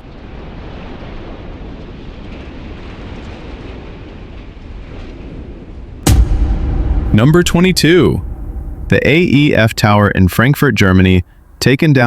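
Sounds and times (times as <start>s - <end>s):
demolition rumbling: 6.1s - 10.2s.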